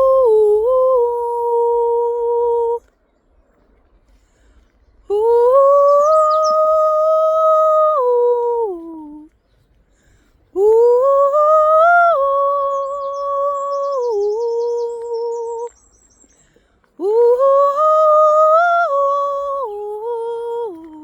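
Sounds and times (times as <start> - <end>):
person singing long tones: 0.0 - 2.9, 5.1 - 9.4, 10.5 - 15.9, 16.9 - 21.0
faint bird chirps: 2.9 - 7.8, 12.4 - 16.8.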